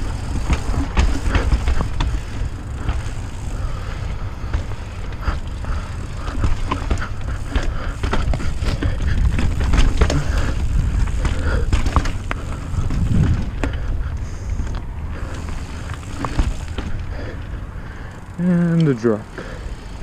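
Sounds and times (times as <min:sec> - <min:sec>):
bike clicks and rattles: 0:00.0 - 0:20.0
bike tyres rolling over stones: 0:00.0 - 0:20.0
wind on microphone: 0:08.0 - 0:15.2.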